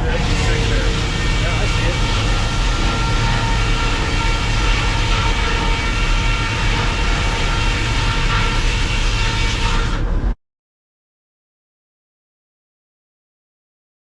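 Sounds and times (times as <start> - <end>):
sawmill machinery hum: 0.0 - 10.4
steady high machine tones: 0.0 - 10.4.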